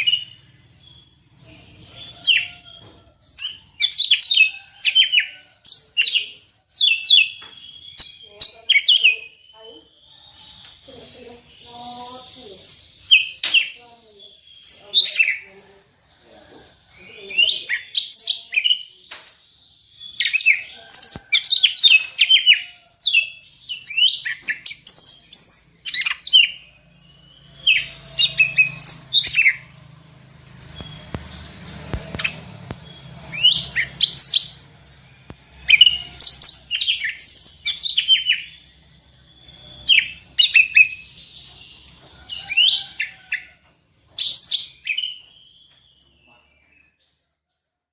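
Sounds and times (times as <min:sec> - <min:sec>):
songbird whistling and chirping: 0:00.0 - 0:09.9, 0:20.0 - 0:34.6, 0:35.5 - 0:43.5.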